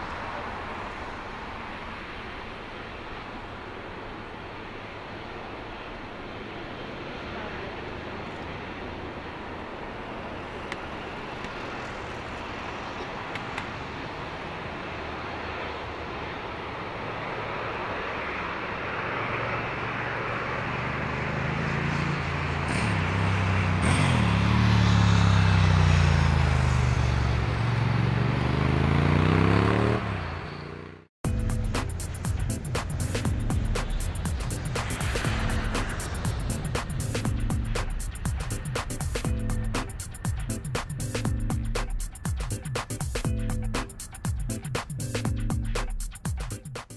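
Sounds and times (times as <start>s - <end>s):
jet engine roar: 0.0s - 28.0s, 31.6s - 45.3s
low hum sweeping in pitch: 31.3s - 46.0s.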